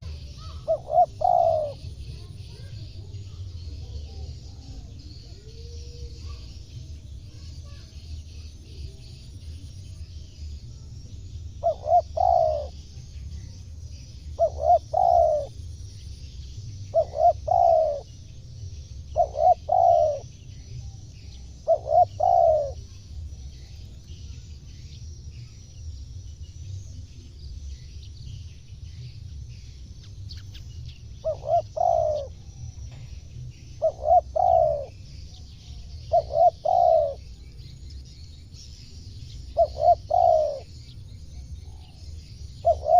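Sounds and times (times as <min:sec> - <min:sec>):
dove cooing: 0:00.0 - 0:02.7, 0:11.6 - 0:12.8, 0:14.2 - 0:15.6, 0:16.9 - 0:18.2, 0:19.0 - 0:20.3, 0:21.3 - 0:22.9, 0:31.2 - 0:35.1, 0:35.7 - 0:37.4, 0:39.5 - 0:40.8, 0:42.6 - 0:42.9.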